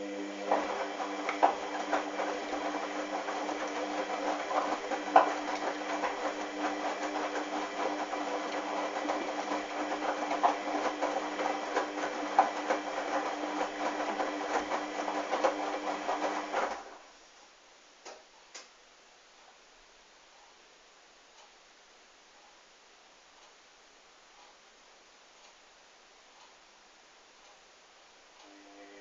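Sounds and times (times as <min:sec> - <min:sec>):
washing machine motor humming: 0:00.0 - 0:17.0, 0:28.4 - 0:29.0
laundry clicking and knocking: 0:00.5 - 0:16.8.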